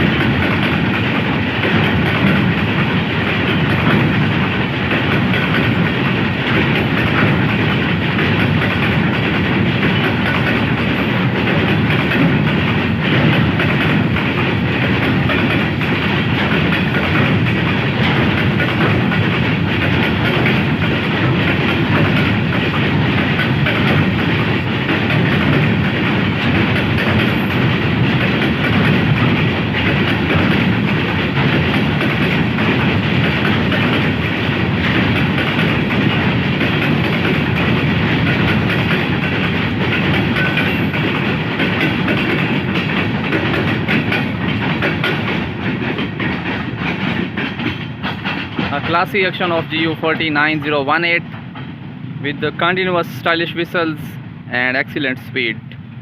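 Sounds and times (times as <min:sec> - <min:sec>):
freight train wheels rattling: 0:00.0 - 0:56.0.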